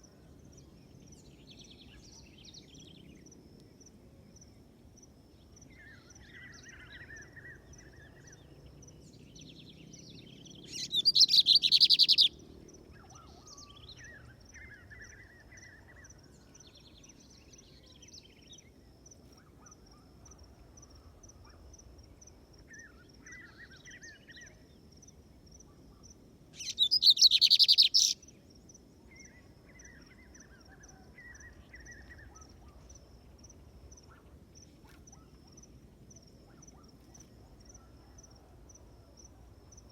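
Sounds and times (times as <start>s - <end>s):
bird trilled song: 10.6s - 12.4s, 26.6s - 28.2s
soft bird chirps: 10.6s - 16.2s, 25.7s - 28.3s.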